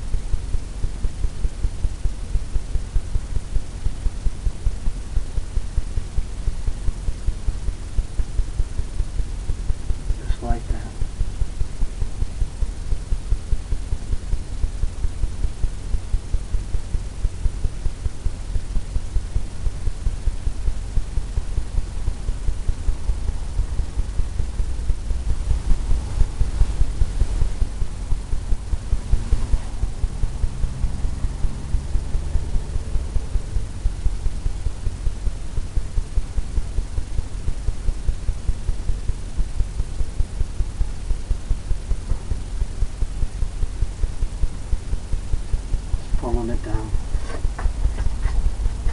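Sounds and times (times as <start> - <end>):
steady low hum: 0.0 - 48.9
paint brush tapping on canvas: 47.2 - 48.9.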